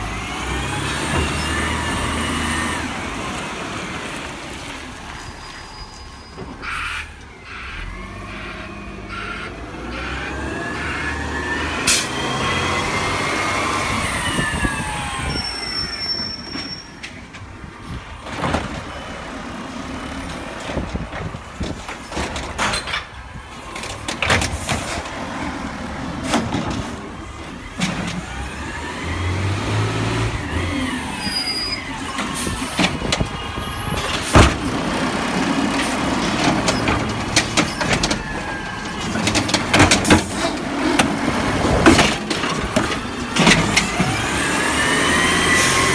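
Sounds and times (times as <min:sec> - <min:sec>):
garbage truck hydraulics whining: 0:00.0 - 0:45.9
knocks and bangs: 0:34.0 - 0:35.3.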